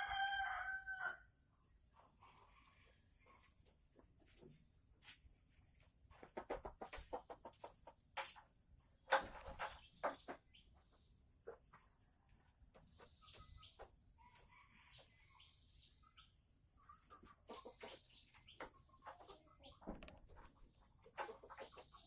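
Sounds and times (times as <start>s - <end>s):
hen cackling clucks: 6.1s - 8.4s, 9.4s - 22.0s.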